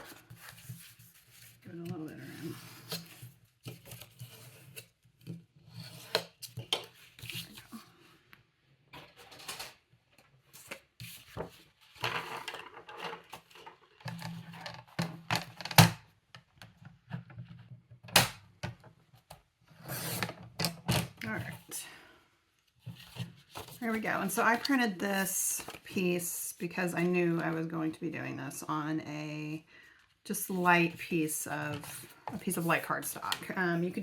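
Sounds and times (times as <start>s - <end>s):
paper rustling: 22.8s - 24.8s.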